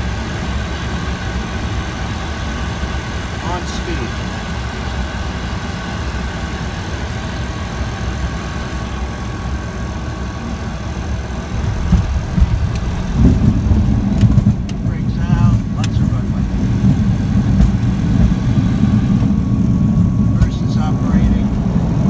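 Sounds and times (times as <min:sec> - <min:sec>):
aircraft engine drone: 0:00.0 - 0:22.0
low rumble: 0:10.3 - 0:22.0
uneven knocks and bumps: 0:11.5 - 0:19.4.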